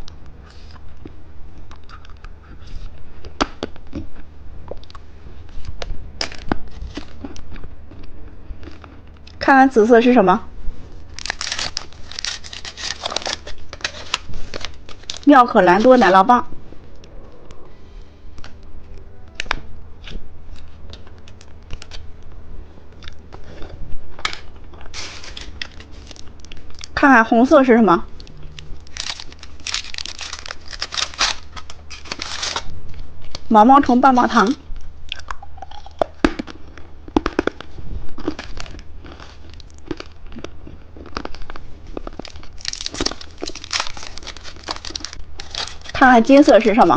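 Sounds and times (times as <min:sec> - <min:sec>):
packaging rustle: 0:11.0 - 0:16.2, 0:24.3 - 0:26.9, 0:28.5 - 0:33.4, 0:41.1 - 0:46.0
plastic packaging crinkling: 0:11.0 - 0:16.3, 0:23.4 - 0:27.0, 0:28.2 - 0:33.6, 0:35.2 - 0:46.9.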